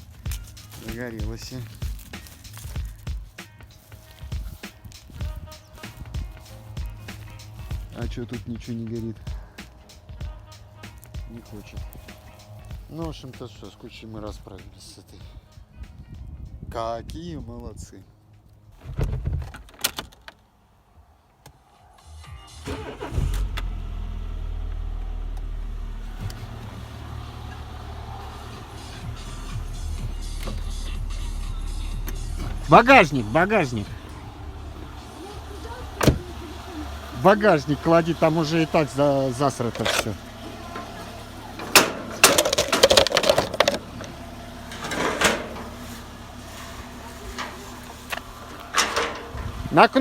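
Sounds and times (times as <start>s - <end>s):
items clattering into car boot: 0.0s - 8.0s, 37.7s - 49.8s
car engine starting and idling: 0.0s - 15.2s, 22.0s - 50.0s.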